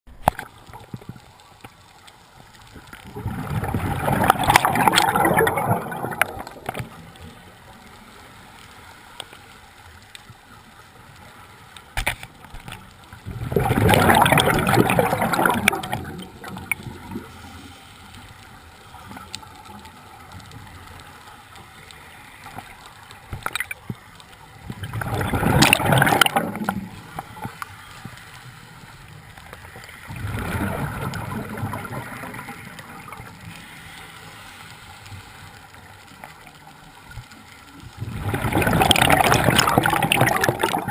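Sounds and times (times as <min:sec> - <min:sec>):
faint scattered clicks: 0:00.1 - 0:13.3, 0:14.0 - 0:40.9
bubbles rushing from regulator: 0:03.1 - 0:06.9, 0:13.2 - 0:17.3, 0:24.7 - 0:27.2, 0:30.1 - 0:33.2, 0:38.0 - 0:40.9.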